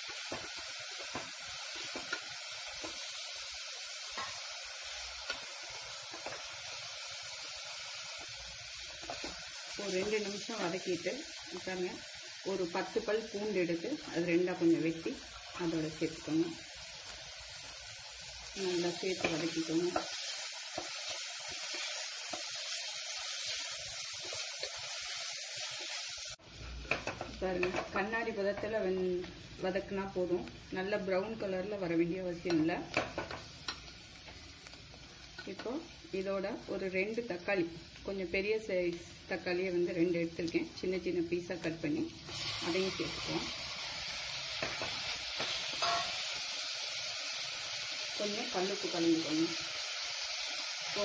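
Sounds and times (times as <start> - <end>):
onions sizzling in hot oil: 0.0 - 51.0.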